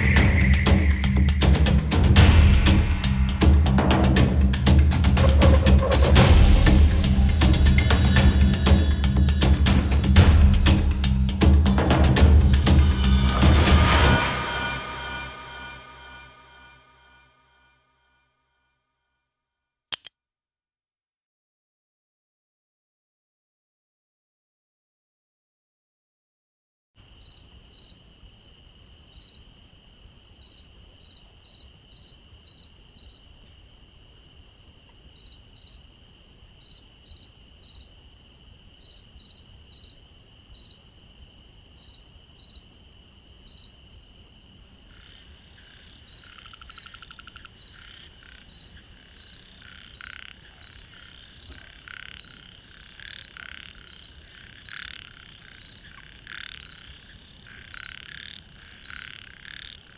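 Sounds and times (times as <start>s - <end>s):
frogs croaking: 0.0s - 1.9s, 27.2s - 59.9s
short chirps: 0.0s - 2.1s
insect trill: 0.0s - 2.2s, 12.7s - 17.2s, 27.1s - 59.9s.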